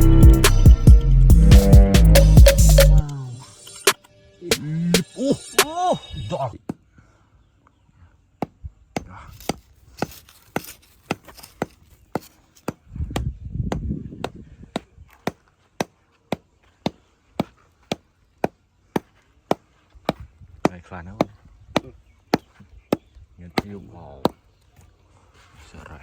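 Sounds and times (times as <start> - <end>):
digging tool striking stony ground: 8.4 - 24.4.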